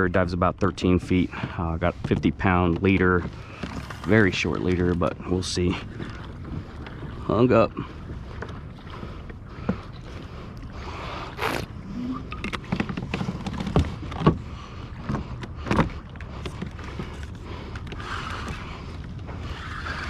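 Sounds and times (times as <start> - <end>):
water washing against hull: 0.0 - 20.0
knocks and clicks from hull: 12.2 - 18.6.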